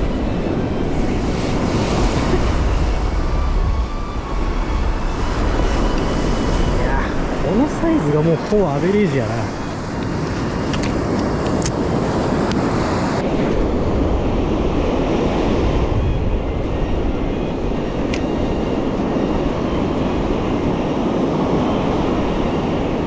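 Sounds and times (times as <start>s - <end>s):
surf washing onto beach: 0.0s - 23.0s
wind buffeting microphone: 0.0s - 23.0s.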